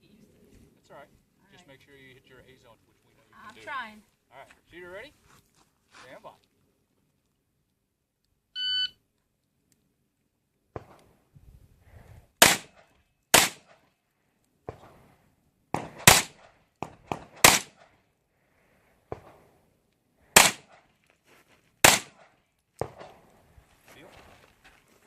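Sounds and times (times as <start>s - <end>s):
gunshots: 12.4s - 13.8s, 15.7s - 17.9s, 20.4s - 20.9s, 21.8s - 23.2s.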